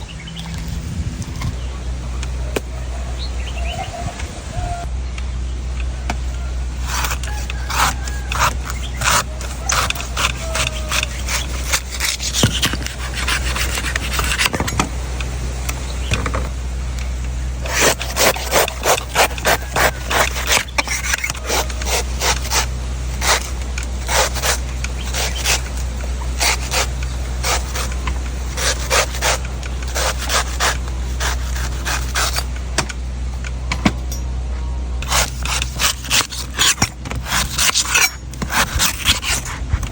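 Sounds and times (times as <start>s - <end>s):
steady low hum: 0.0s - 39.9s
knife chopping coconut: 6.8s - 14.6s, 17.7s - 32.5s.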